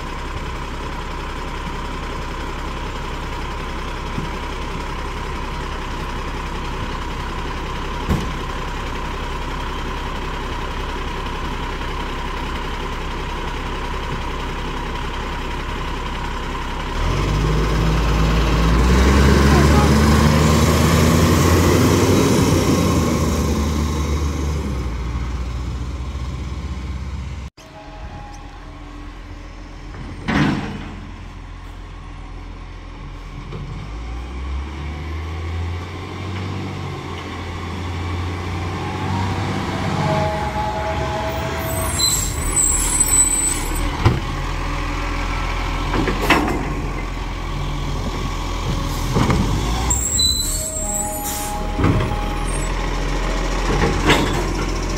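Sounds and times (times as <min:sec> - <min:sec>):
garbage truck diesel engine running: 0:00.0 - 0:54.9
air brake hissing: 0:49.9 - 0:52.5.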